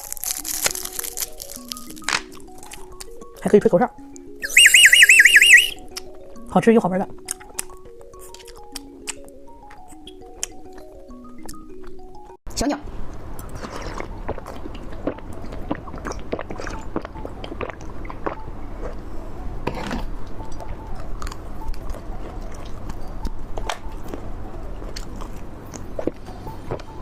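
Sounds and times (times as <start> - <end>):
candy crunching: 0.0 - 2.0.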